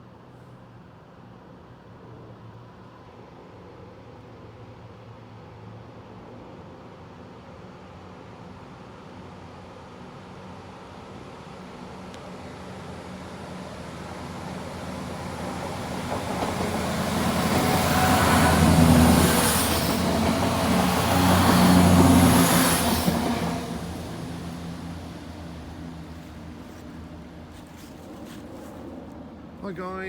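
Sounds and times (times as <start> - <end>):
train passing close by: 2.8 - 30.0.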